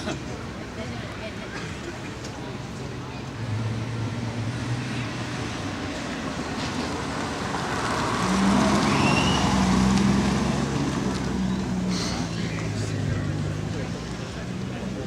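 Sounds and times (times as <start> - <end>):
car engine driving past: 6.4 - 14.0.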